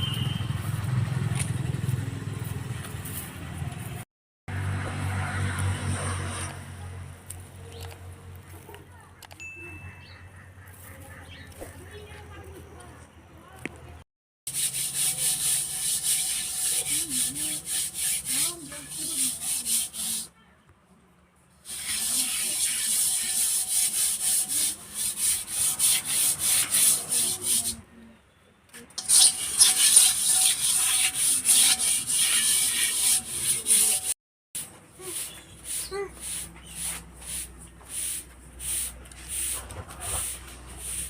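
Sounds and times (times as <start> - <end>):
rhythmic scraping strokes: 14.5 - 20.3, 21.7 - 27.8, 29.0 - 41.0.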